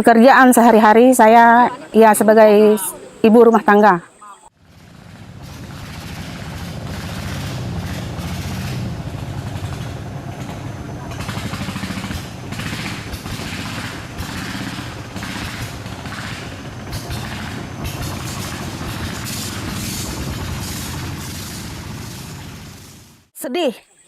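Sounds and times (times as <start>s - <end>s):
heavy engine rumbling: 4.5s - 23.3s
hissing: 4.8s - 23.3s.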